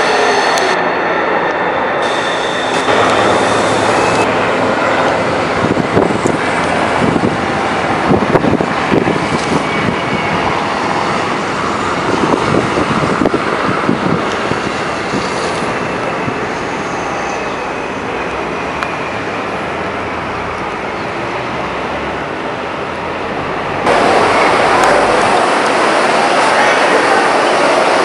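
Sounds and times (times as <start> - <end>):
train wheels rumbling and clattering: 17.9 - 28.0.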